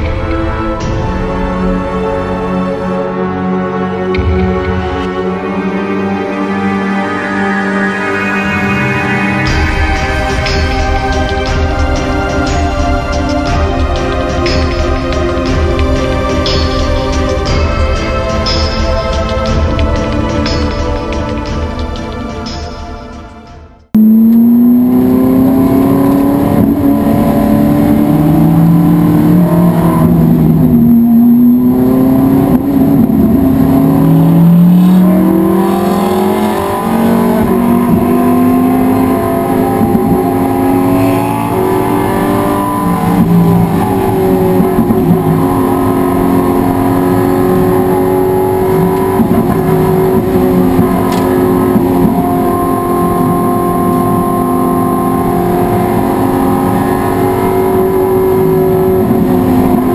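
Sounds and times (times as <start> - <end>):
race car engine revving: 23.9 - 59.9.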